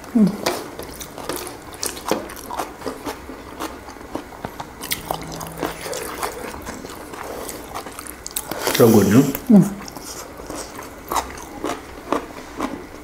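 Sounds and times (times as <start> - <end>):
brief low hum: 4.6 - 7.6
close-miked chewing: 9.7 - 13.0.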